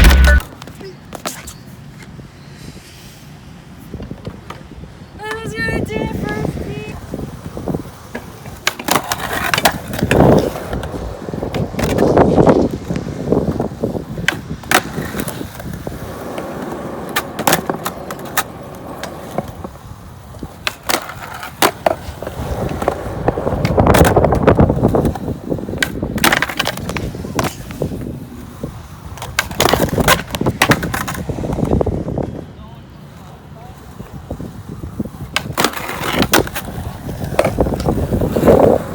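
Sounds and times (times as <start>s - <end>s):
skateboard wheels rolling on concrete: 0.0s - 38.9s
skateboard clacking on ground: 7.0s - 32.3s, 35.1s - 38.9s.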